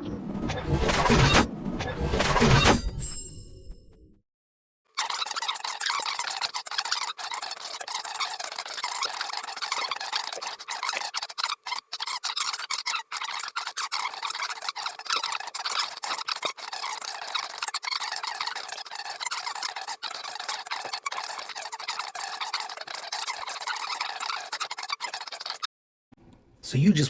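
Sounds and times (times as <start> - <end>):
high-pitched scraping and clicking: 4.9 - 25.7.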